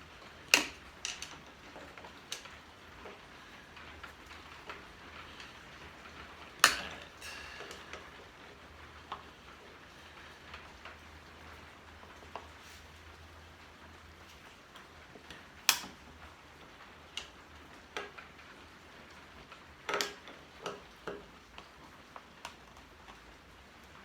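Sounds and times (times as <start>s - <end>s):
hand tools clicking on metal hardware: 6.6s - 8.1s.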